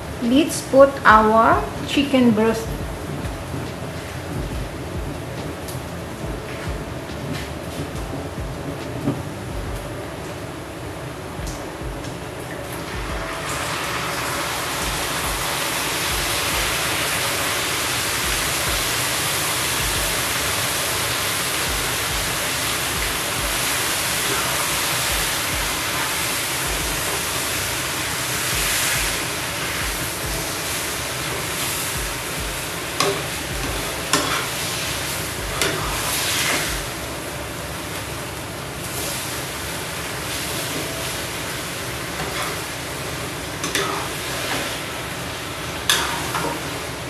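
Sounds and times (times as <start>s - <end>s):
noodles sizzling in a wok: 12.1s - 47.0s.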